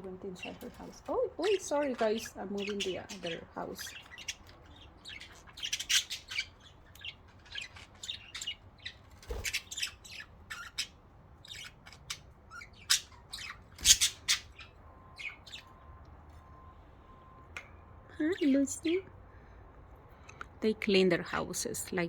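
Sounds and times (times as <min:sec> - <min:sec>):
budgerigars chirping: 0:00.1 - 0:16.0.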